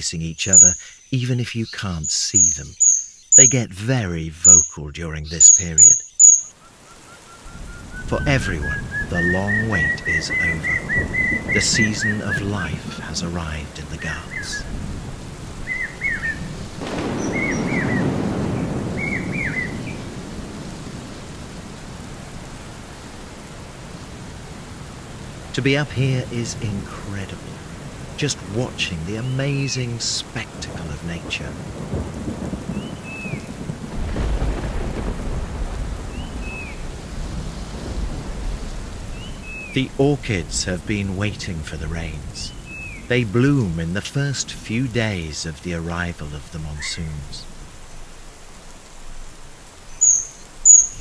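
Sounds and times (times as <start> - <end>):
steady rain: 0.0 - 1.1, 1.7 - 51.0
bird whistled call: 2.4 - 3.6, 4.4 - 4.8, 5.4 - 12.2, 49.9 - 51.0
rolling thunder: 7.4 - 44.0.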